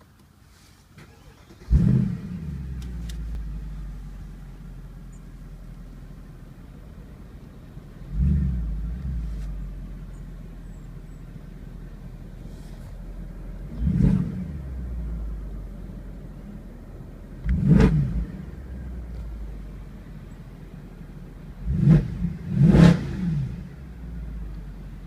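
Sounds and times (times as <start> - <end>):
car engine starting and idling: 0.0 - 25.0
engine revving: 1.1 - 3.8, 8.1 - 9.5, 13.6 - 15.4, 17.4 - 18.6, 21.6 - 23.9.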